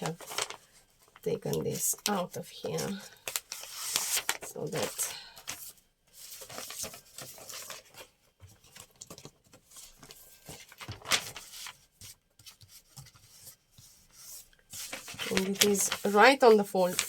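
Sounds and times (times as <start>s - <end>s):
paper rustling: 0.0s - 17.0s.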